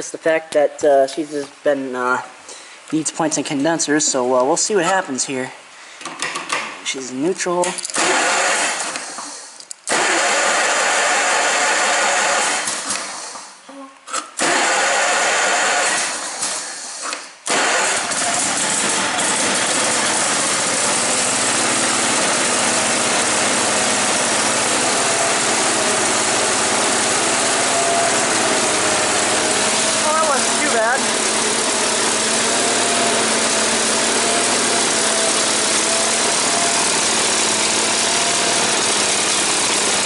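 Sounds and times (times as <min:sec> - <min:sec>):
tractor engine cranking: 0:07.7 - 0:13.4, 0:14.4 - 0:16.7, 0:17.5 - 0:40.0
tractor engine running: 0:17.5 - 0:40.0.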